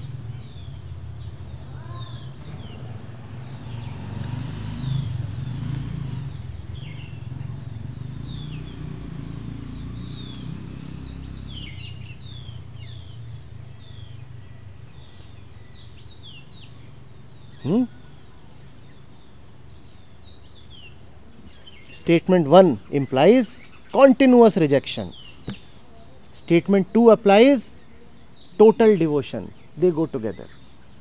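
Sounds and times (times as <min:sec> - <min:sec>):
low outdoor rumble: 0:00.0 - 0:19.7
birds chirping: 0:00.0 - 0:31.0.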